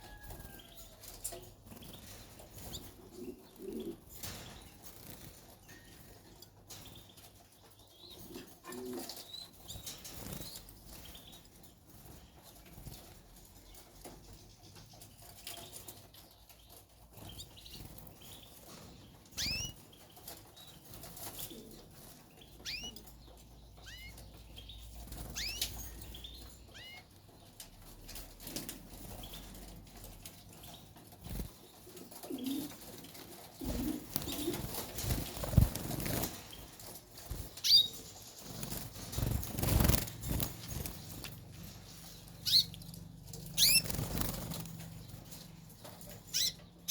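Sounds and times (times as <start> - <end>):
canaries chirping: 0.0 - 46.9
wing flutters: 28.1 - 46.9.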